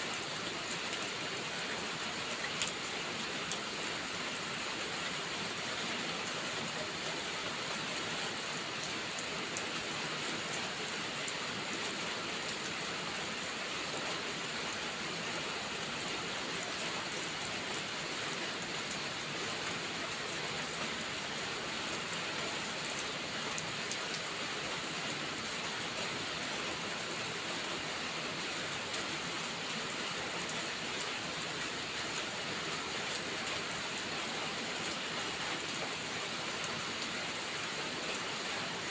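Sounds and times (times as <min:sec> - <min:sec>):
steady rain hiss: 0:00.0 - 0:38.9
faint raindrop ticks: 0:02.3 - 0:03.7, 0:23.0 - 0:24.3.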